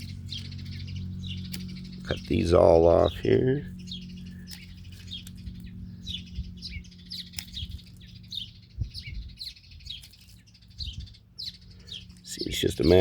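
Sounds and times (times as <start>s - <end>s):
low steady hum: 0.0s - 13.0s
songbirds chirping: 0.0s - 13.0s.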